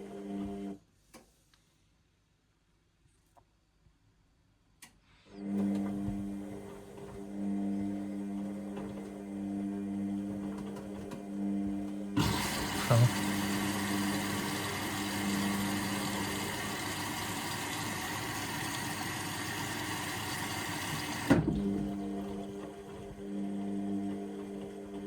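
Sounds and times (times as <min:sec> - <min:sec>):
washing machine low hum: 0:05.4 - 0:25.0
water rushing into drum: 0:12.2 - 0:22.3.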